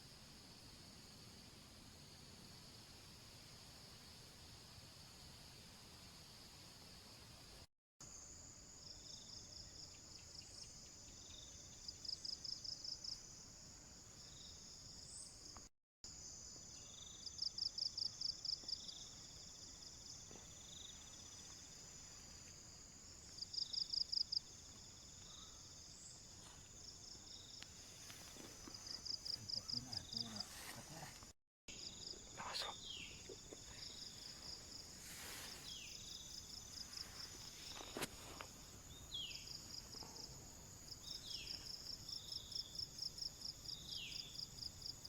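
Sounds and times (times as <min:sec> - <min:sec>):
insects droning: 0:00.0 - 0:45.0
insects chirping rapidly: 0:16.1 - 0:45.0.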